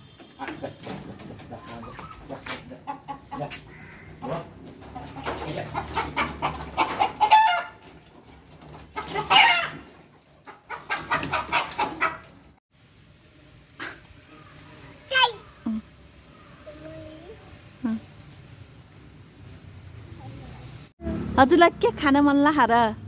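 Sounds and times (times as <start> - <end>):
poultry clucking: 0.1 - 12.6.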